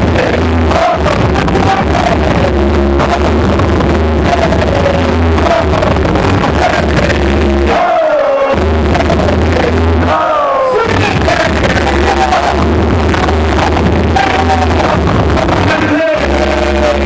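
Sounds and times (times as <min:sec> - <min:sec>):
hip-hop music with heavy bass: 0:00.0 - 0:17.0
vocals over beat: 0:00.0 - 0:17.0.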